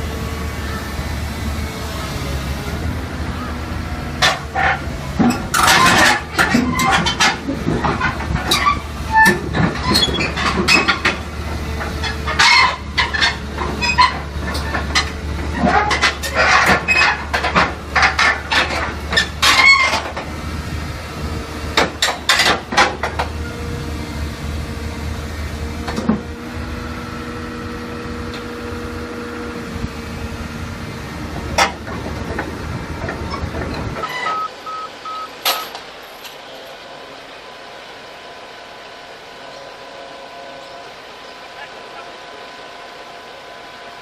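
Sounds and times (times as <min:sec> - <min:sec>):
heavy machinery droning: 0:00.0 - 0:44.0
sharp clanks and knocks: 0:04.2 - 0:20.3, 0:21.7 - 0:23.4, 0:31.3 - 0:34.5, 0:35.4 - 0:36.5
short beeps: 0:34.0 - 0:35.8.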